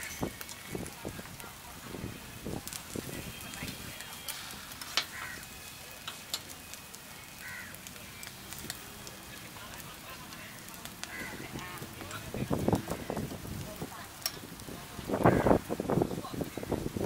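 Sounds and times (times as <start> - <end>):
food sizzling on a griddle: 0.0 - 17.0.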